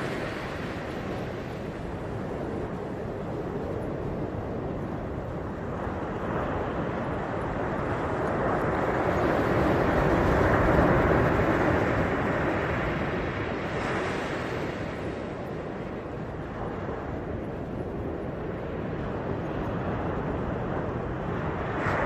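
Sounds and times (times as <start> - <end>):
ocean wave rushing: 0.0 - 1.5.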